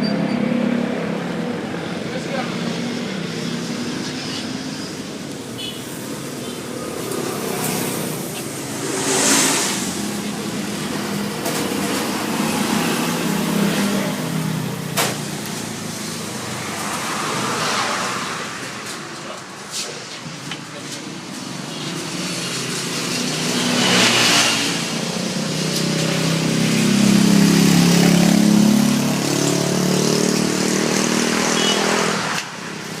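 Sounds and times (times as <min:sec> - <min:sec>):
two-stroke motorcycle engine revving: 0:22.6 - 0:32.4.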